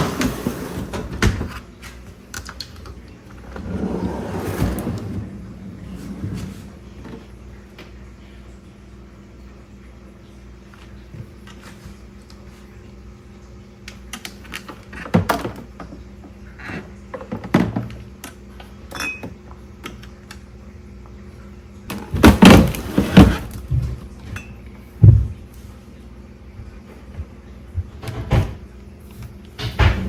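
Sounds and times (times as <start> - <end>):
faint steady hum: 0.0 - 30.0
dishes clattering: 18.9 - 19.4.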